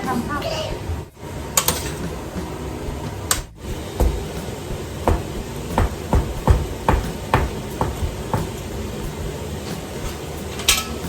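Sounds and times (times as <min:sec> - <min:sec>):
heavy knocks on hard surface: 0:03.3 - 0:09.4.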